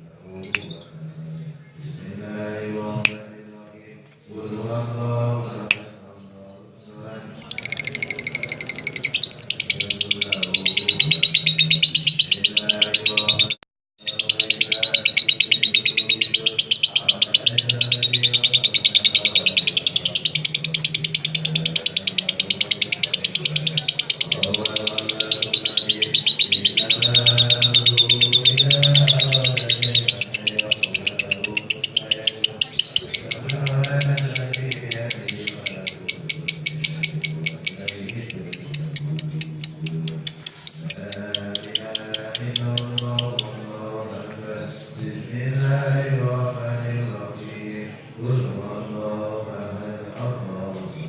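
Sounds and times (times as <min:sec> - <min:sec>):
bird high-pitched chattering trill: 0:07.4 - 0:43.6.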